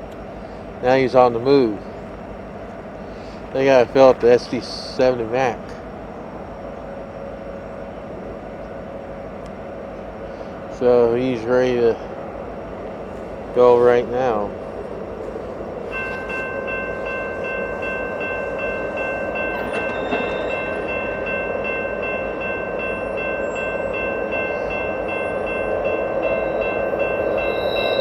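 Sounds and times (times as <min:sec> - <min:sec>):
diesel locomotive rumble: 0:00.0 - 0:28.0
bell ringing: 0:15.9 - 0:28.0.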